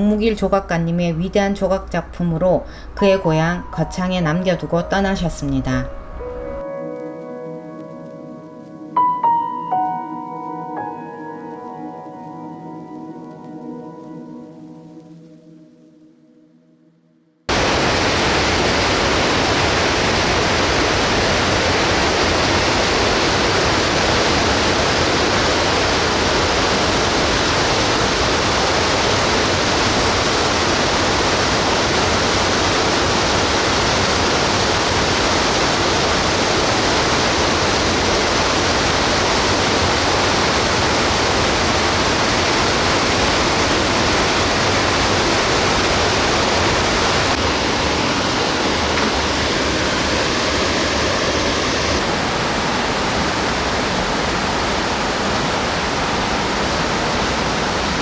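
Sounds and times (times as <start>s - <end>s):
stream pouring over rocks: 17.5s - 58.0s.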